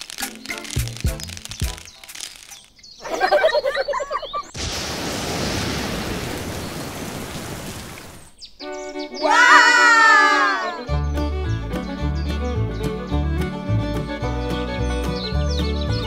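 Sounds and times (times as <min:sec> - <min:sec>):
rain hissing: 0:00.0 - 0:03.4, 0:04.5 - 0:08.4.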